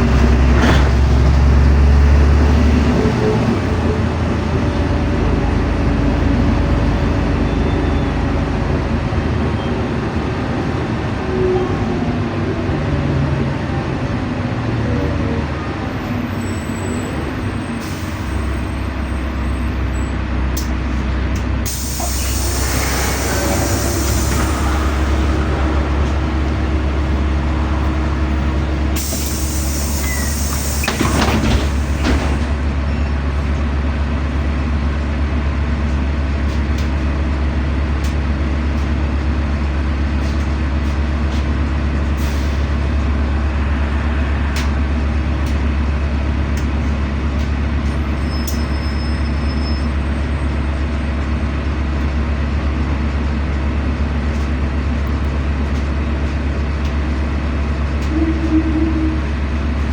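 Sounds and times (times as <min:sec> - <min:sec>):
bus engine drone: 0:00.0 - 0:59.9
burst of hiss: 0:21.7 - 0:26.4.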